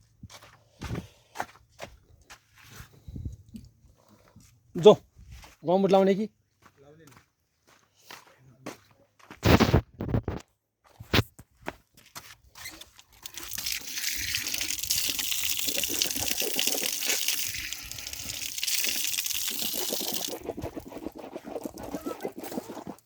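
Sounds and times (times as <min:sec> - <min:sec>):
water pouring: 0:13.1 - 0:23.0.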